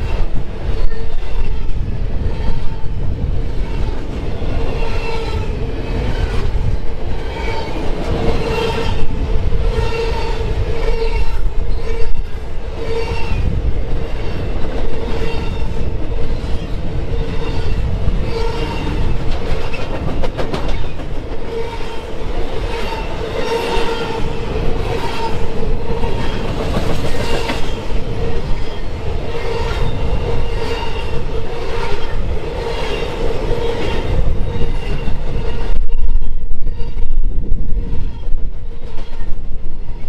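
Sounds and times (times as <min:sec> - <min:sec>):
train wheels clattering rhythmically: 0:18.8 - 0:21.5.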